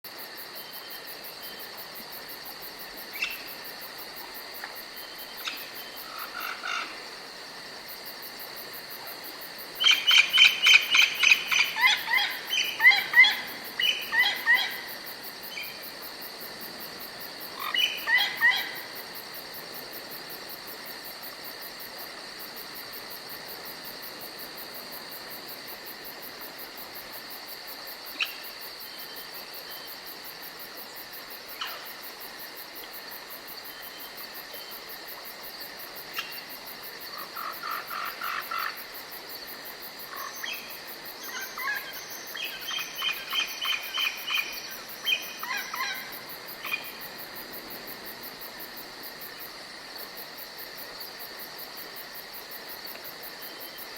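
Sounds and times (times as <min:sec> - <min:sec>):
high insect drone: 0:00.1 - 0:53.9
rapid repeated bird calls: 0:09.8 - 0:14.9, 0:40.1 - 0:47.0.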